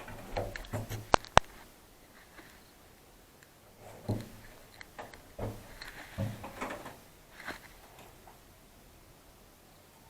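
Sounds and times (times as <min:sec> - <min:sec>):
sharp clicks: 0:00.0 - 0:01.7, 0:03.4 - 0:08.1.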